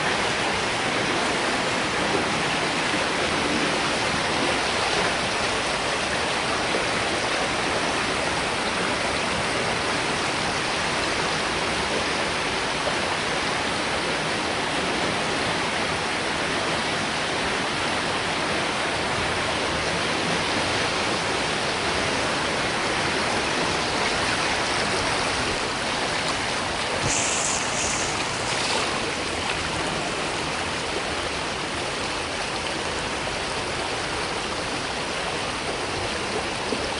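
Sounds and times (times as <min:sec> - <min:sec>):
river rushing: 0:00.0 - 0:36.9
brief higher hisses: 0:27.0 - 0:28.8.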